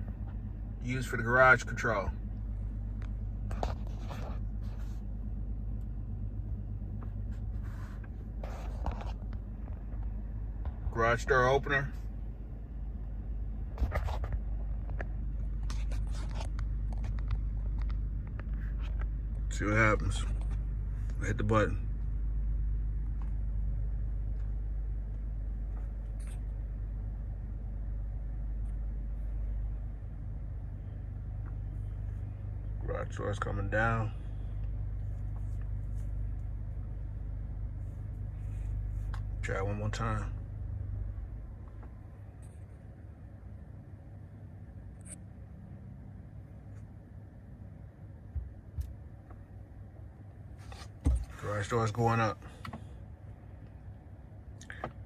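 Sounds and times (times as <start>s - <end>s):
car idling inside cabin: 0.0s - 55.0s
low mechanical hum: 0.0s - 55.0s
soft rustling: 2.3s - 5.8s, 6.8s - 10.2s.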